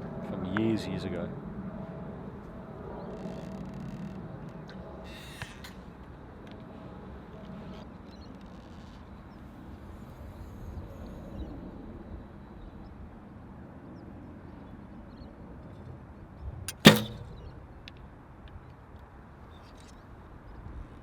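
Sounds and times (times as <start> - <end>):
bow shot snap: 16.7 - 17.3.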